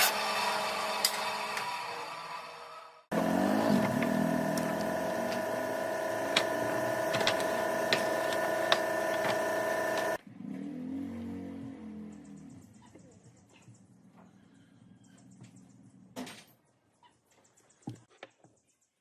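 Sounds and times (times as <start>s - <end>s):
motor running: 3.1s - 10.2s.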